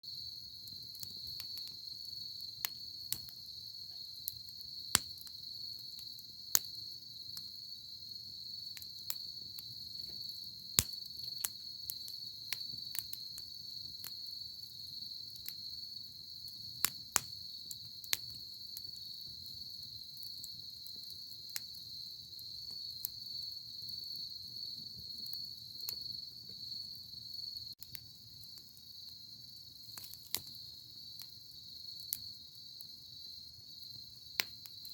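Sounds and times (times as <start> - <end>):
campfire crackling and popping: 0.0 - 34.9
crickets trilling: 0.0 - 34.9.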